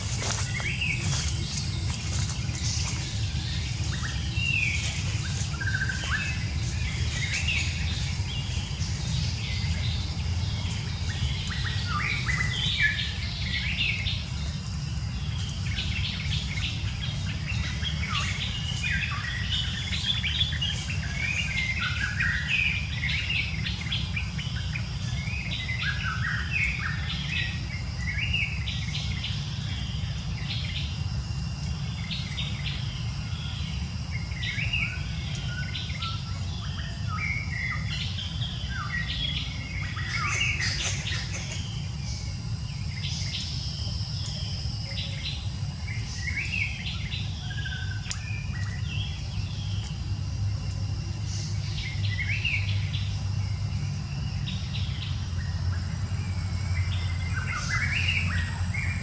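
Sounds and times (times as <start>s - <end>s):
small birds chirping: 0.0s - 59.0s
steady low rumble: 0.0s - 59.0s.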